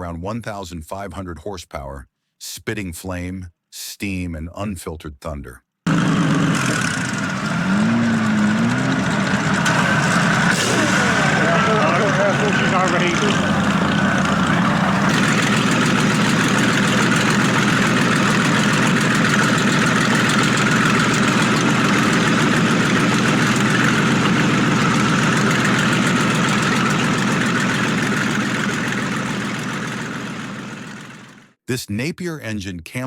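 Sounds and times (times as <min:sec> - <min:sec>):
marine engine running steadily: 0:05.9 - 0:31.6.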